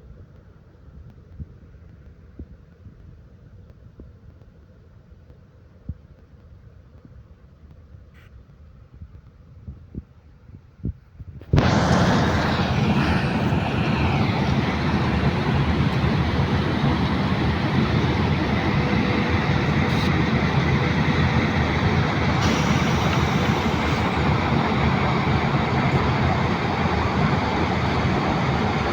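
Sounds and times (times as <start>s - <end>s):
plant machinery running: 11.6s - 28.9s.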